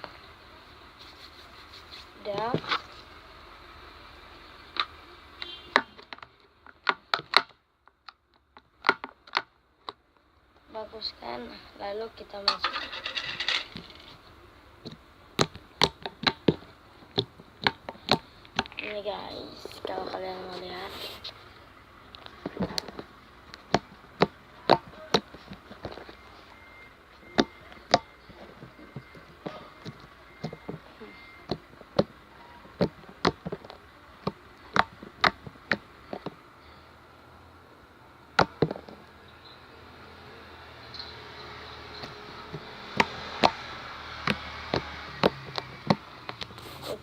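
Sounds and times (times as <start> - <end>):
slime clicking and popping: 14.8 - 19.0.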